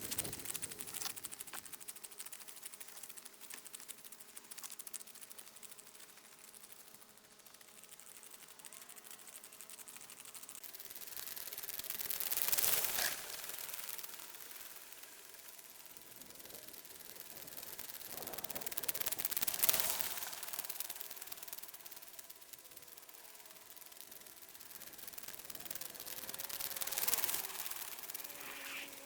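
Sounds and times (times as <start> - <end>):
ice resurfacer hiss: 27.4 - 29.0.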